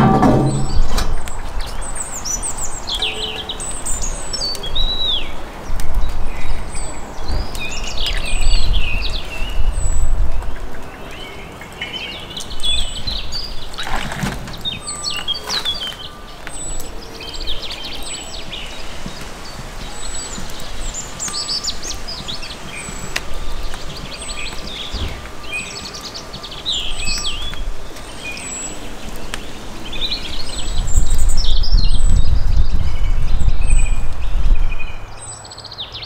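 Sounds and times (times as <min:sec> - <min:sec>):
knock: 0:00.0 - 0:01.1
low outdoor rumble: 0:00.0 - 0:01.4
songbirds chirping and twittering: 0:00.0 - 0:36.0.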